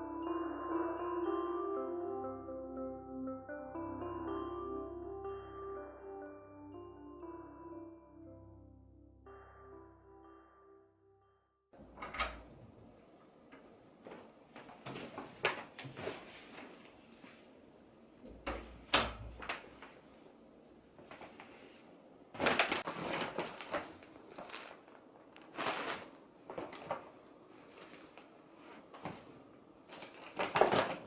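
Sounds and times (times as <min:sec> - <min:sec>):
rustling and scraping: 0:14.0 - 0:17.6, 0:21.0 - 0:31.0.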